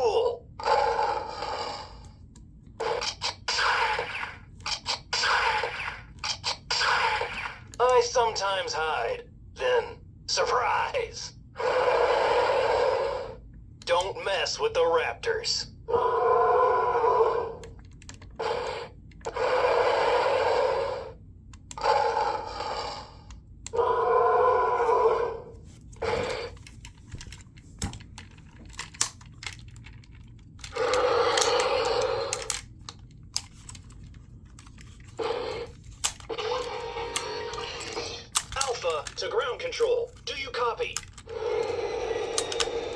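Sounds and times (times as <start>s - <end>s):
plastic toy parts clicking: 26.5s - 42.9s.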